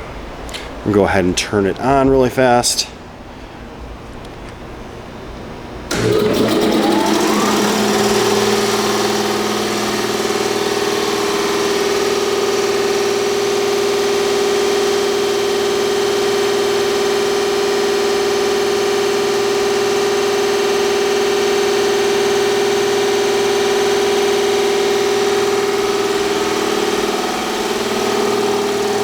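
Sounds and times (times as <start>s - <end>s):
air compressor pump running: 5.9s - 29.0s
electric motor winding up: 5.9s - 29.0s.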